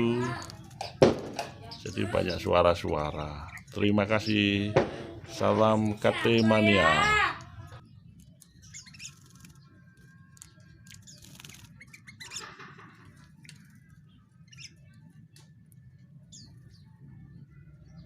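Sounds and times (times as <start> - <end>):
high bird chirps: 6.2 - 15.3
bird fluttering wings in water: 8.8 - 9.6, 10.8 - 12.4.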